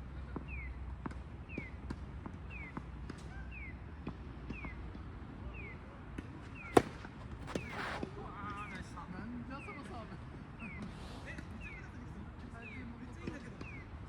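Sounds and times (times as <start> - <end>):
tennis ball struck: 6.6 - 8.1.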